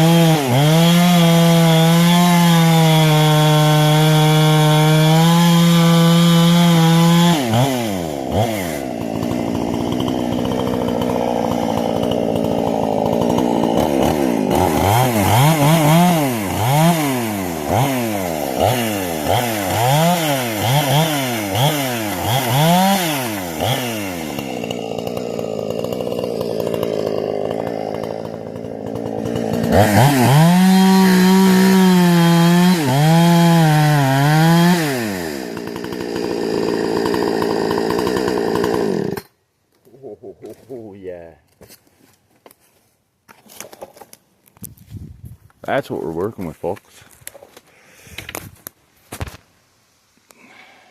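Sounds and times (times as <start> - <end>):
chainsaw engine revving: 0.0 - 39.3.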